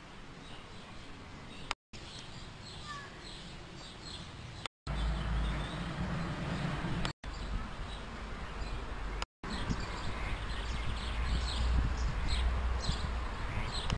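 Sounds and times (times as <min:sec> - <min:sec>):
outdoor background noise: 0:00.0 - 0:13.9
wind rumble on microphone: 0:05.6 - 0:13.9.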